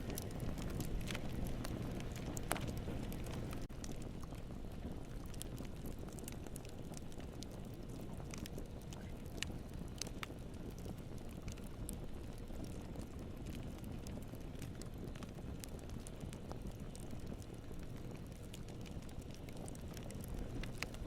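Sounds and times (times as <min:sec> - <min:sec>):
campfire flames rumbling: 0:00.0 - 0:21.0
wood crackling and popping: 0:00.0 - 0:21.0.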